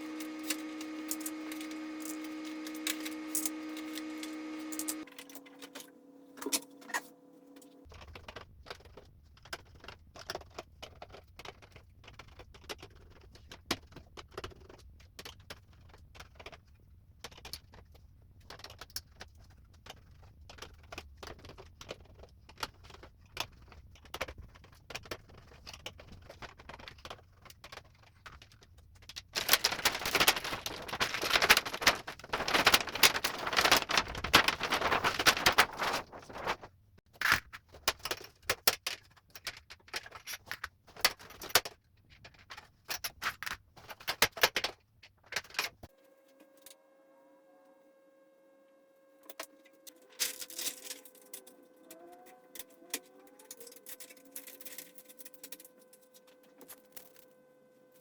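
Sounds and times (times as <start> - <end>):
small hard objects clicking and rattling: 18.6 - 36.5.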